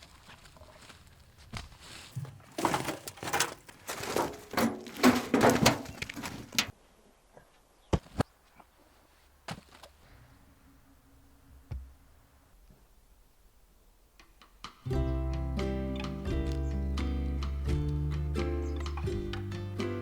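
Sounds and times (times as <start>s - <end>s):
firewood clattering together: 2.0s - 6.7s.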